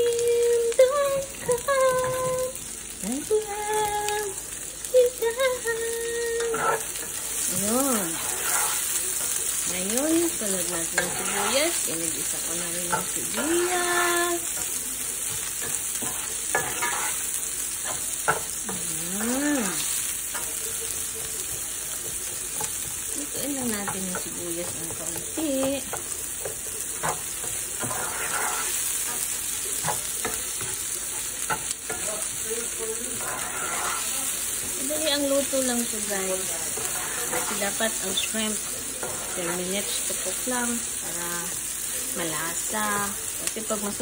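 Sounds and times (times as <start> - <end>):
garlic and onion sizzling in oil: 0.0 - 44.0
spatula scraping and tapping pan: 6.4 - 40.8.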